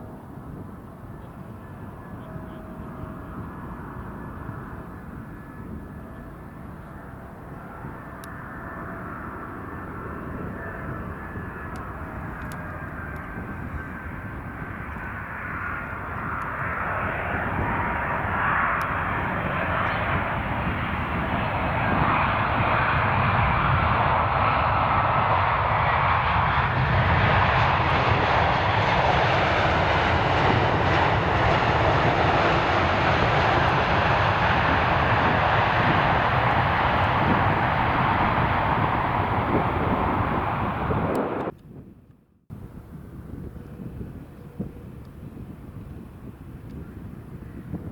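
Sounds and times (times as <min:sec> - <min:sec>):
airliner jet engines passing: 0:00.0 - 0:41.8.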